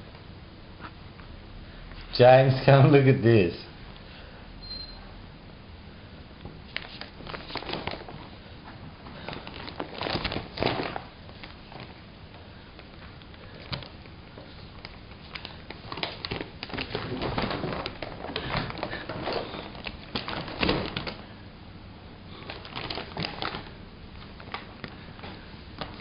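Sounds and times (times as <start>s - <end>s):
paper bag crinkling: 6.7s - 8.4s, 9.1s - 12.0s, 13.3s - 21.3s, 22.4s - 26.0s.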